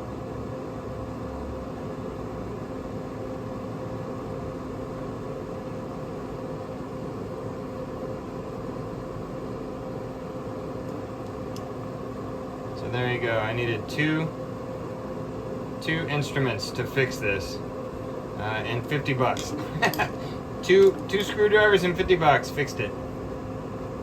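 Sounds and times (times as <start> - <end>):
grill fan and motor hum: 0.0 - 24.0.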